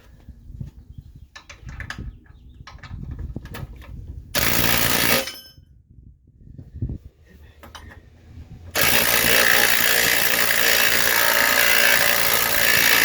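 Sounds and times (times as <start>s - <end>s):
impact wrench hammering: 4.4s - 5.4s, 8.8s - 13.0s.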